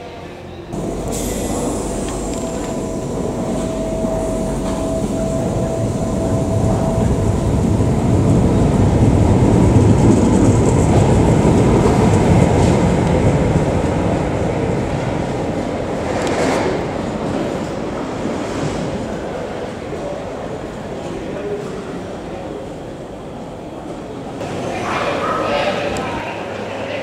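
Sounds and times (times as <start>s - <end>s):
train wheels rumbling on rails: 0.7s - 26.7s
thin steady whine: 0.8s - 7.7s.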